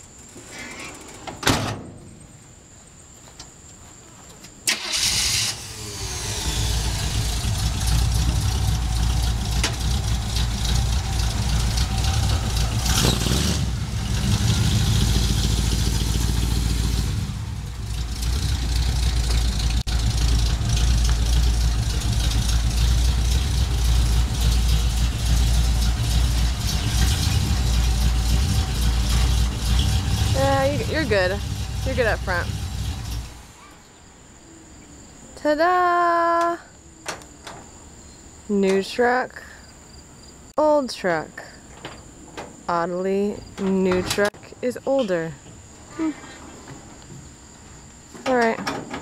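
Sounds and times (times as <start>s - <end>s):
pickup truck engine idling: 4.8s - 33.6s.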